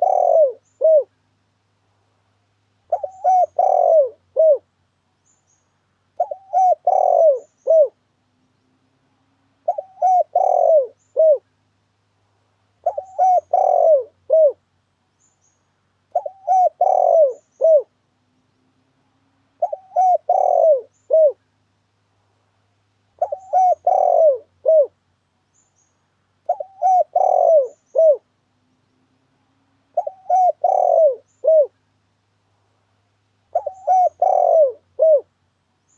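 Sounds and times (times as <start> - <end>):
dove cooing: 0.0 - 1.1, 2.9 - 4.7, 6.2 - 8.0, 9.6 - 11.5, 12.8 - 14.6, 16.1 - 18.0, 19.6 - 21.4, 23.2 - 25.0, 26.4 - 28.3, 29.9 - 31.8, 33.5 - 35.3.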